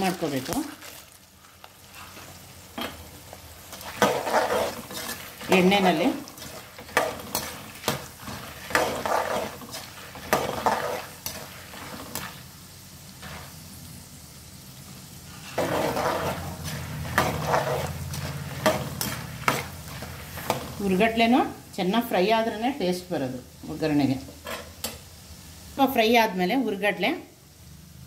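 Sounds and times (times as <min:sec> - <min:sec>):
food sizzling in oil: 0:00.0 - 0:28.0
spatula scraping a pan: 0:01.8 - 0:12.5, 0:13.2 - 0:13.6, 0:15.3 - 0:20.8, 0:24.3 - 0:24.8.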